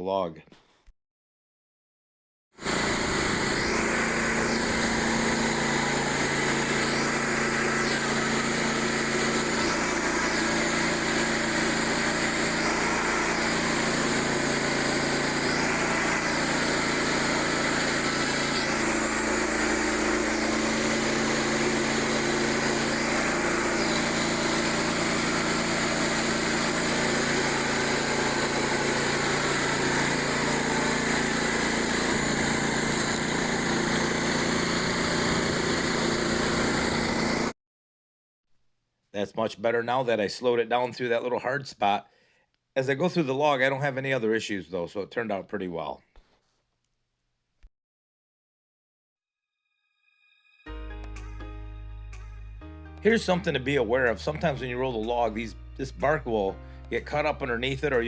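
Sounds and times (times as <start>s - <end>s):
band saw blade cutting log: 2.6s - 37.5s, 53.1s - 58.0s
small gasoline engine running: 2.6s - 37.5s, 53.2s - 58.0s.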